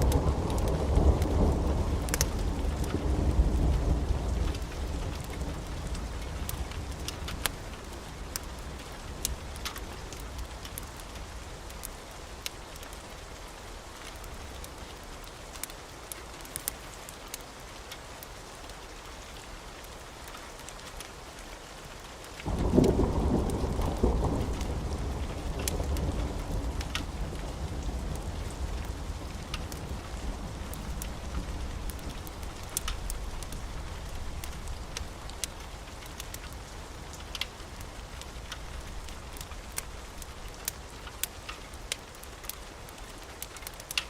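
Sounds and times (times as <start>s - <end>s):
thunderclap rumbling: 0.0s - 7.5s, 22.5s - 37.2s
log fire crackling: 0.0s - 44.0s
steady rain: 0.0s - 44.0s.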